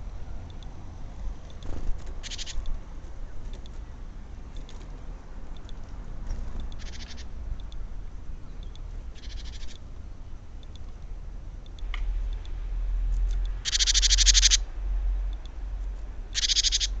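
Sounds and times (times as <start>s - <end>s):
low steady rumble: 0.0s - 17.0s
bird trilling: 2.2s - 2.7s, 6.7s - 7.4s, 8.6s - 9.8s, 13.5s - 14.7s, 16.3s - 17.0s.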